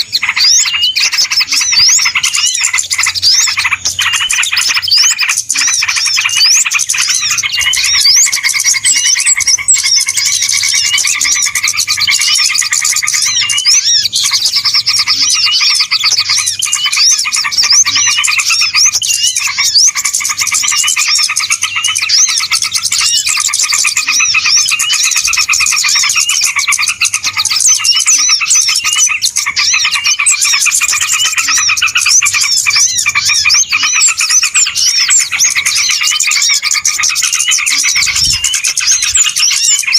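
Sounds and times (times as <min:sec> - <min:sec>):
flock of small birds chirping: 0:00.0 - 0:39.9.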